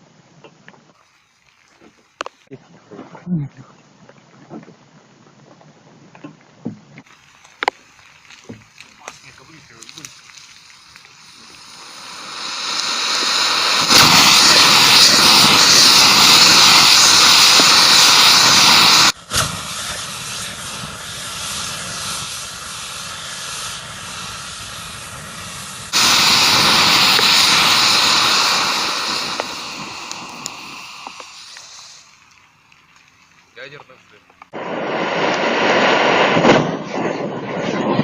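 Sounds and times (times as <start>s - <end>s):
rocket motor hissing: 7.1s - 36.5s.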